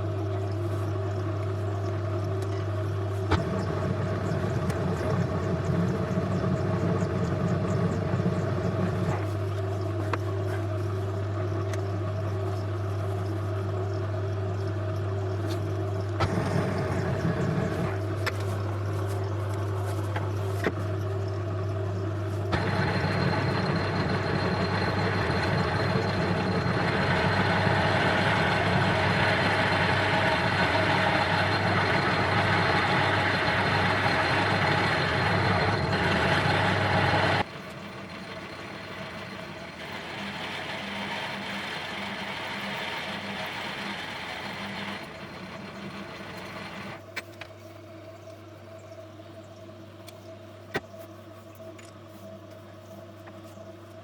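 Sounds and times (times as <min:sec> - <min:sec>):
lathe motor hum: 0:00.0 - 0:47.1
lathe tool cutting: 0:22.5 - 0:37.5, 0:38.2 - 0:47.0.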